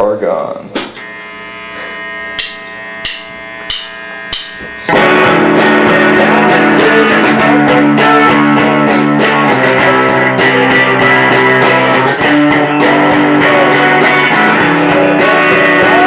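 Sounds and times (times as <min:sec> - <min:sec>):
held guitar chord ringing: 0:01.0 - 0:16.0
sharp taps: 0:02.4 - 0:04.7
rock band playing loud: 0:02.4 - 0:16.0.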